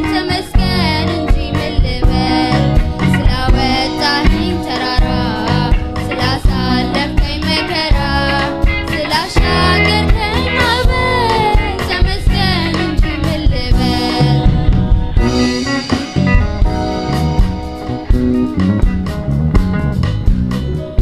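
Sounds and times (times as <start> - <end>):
voices singing worship song: 0.0 - 15.7
band with guitar bass and drums: 0.0 - 21.0.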